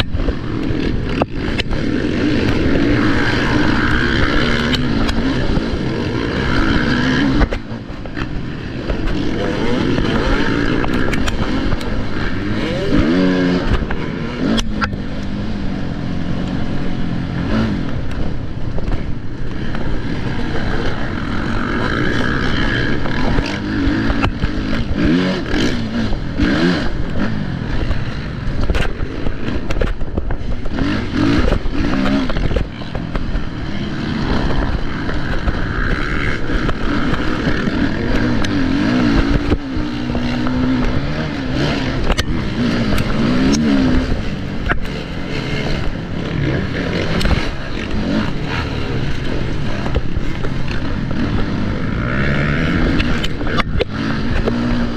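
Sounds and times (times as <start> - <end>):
motocross bike engine revving: 0.0 - 54.9.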